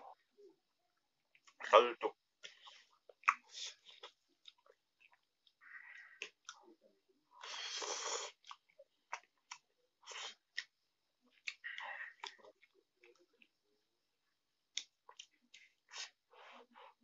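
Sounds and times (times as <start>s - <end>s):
chewing noodles: 2.4s - 6.7s, 7.4s - 13.6s, 14.6s - 16.4s.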